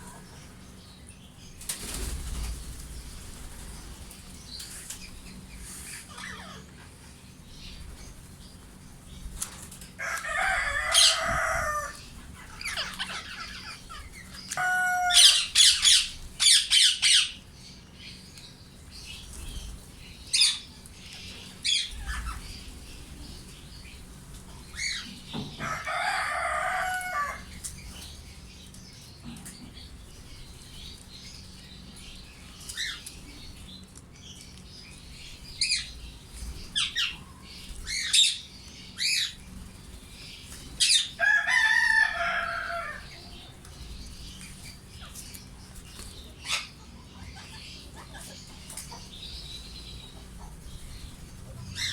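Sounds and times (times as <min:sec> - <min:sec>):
wings flapping: 0:01.6 - 0:05.1
parakeets screeching: 0:05.8 - 0:06.9, 0:10.0 - 0:17.4, 0:21.4 - 0:22.7, 0:24.7 - 0:27.6, 0:37.9 - 0:39.4, 0:40.8 - 0:43.2, 0:46.4 - 0:49.4.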